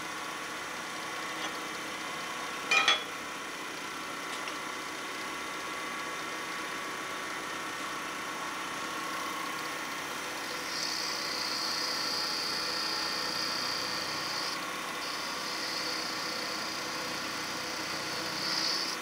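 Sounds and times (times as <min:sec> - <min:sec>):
wood lathe motor hum: 0:05.1 - 0:19.0
turning tool cutting wood hiss: 0:10.4 - 0:19.0.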